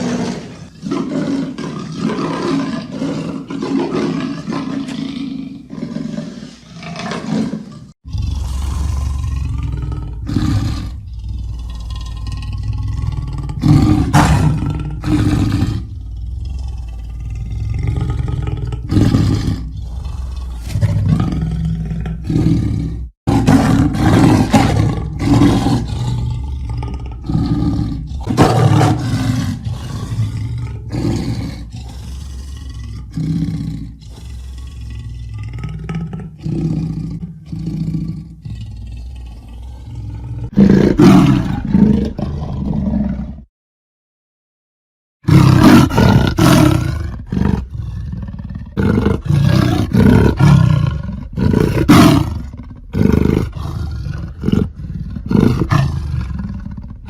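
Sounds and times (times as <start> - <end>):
leopard grunting roars: 0.0 - 43.5, 45.2 - 57.0.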